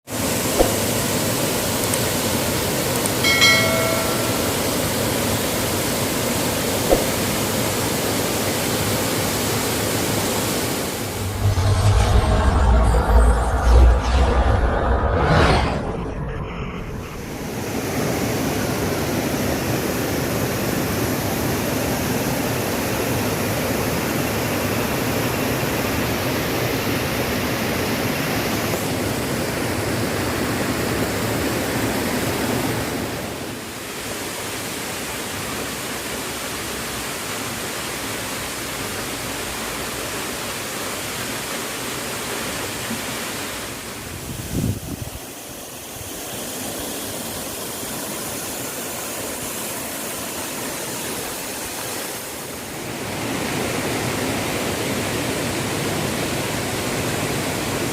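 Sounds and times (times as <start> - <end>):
waterfall rushing: 0.1 - 11.7
low thump: 11.2 - 17.3.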